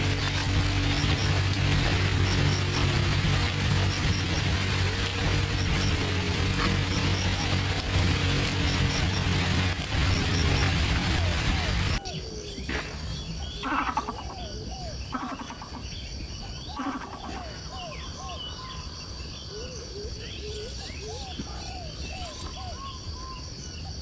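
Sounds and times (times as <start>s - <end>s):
harsh bird calls: 0.0s - 24.0s
high insect drone: 0.0s - 24.0s
bird whistled calls: 19.5s - 24.0s.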